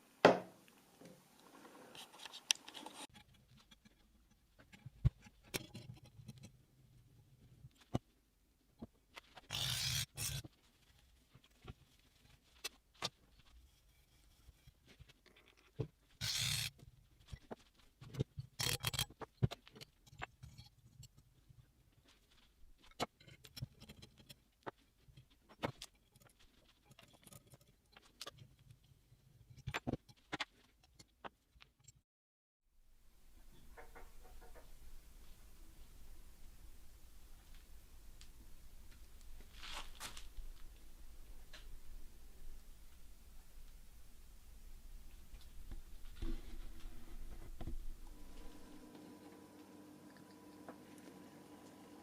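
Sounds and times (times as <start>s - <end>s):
loud knocks on workbench: 0.2s - 0.6s
metal parts and tools clicking: 18.1s - 21.3s
sharp clicks and knocks: 33.5s - 34.9s.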